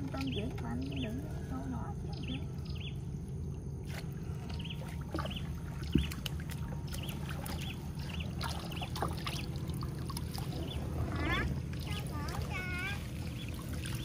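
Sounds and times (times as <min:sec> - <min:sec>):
steady low rumble: 0:00.0 - 0:14.0
small bird chirping: 0:00.1 - 0:03.1, 0:04.4 - 0:06.2.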